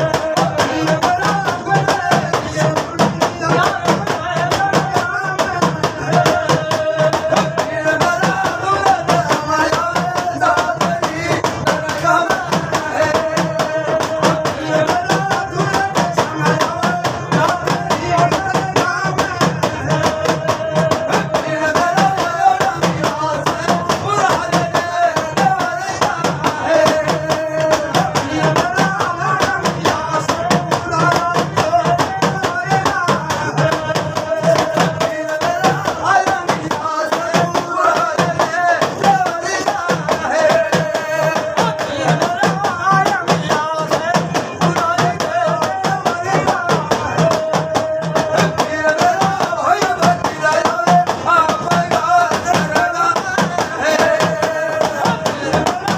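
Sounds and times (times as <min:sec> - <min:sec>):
fast steady percussion: 0:00.0 - 0:55.9.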